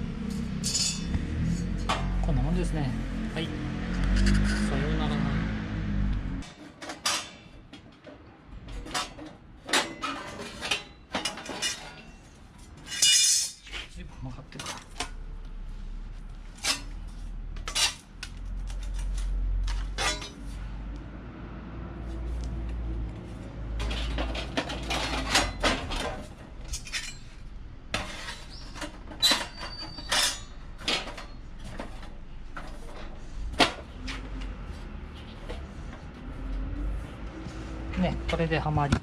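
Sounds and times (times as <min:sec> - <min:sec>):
metal scraping clatter: 0:00.0 - 0:05.0, 0:06.4 - 0:13.9, 0:16.5 - 0:20.6, 0:23.7 - 0:36.1
sheet metal clinking: 0:00.3 - 0:02.2, 0:12.8 - 0:13.6.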